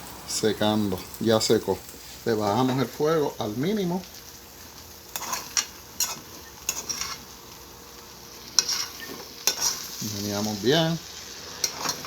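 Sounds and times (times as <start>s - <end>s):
faint sizzle: 0.0s - 12.0s
spoon scraping a pot: 5.1s - 7.3s, 8.5s - 9.9s, 11.6s - 12.0s.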